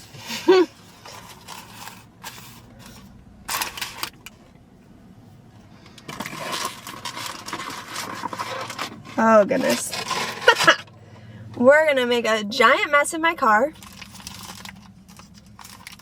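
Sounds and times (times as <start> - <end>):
paper rustling and crinkling: 6.1 - 10.6, 13.8 - 16.0.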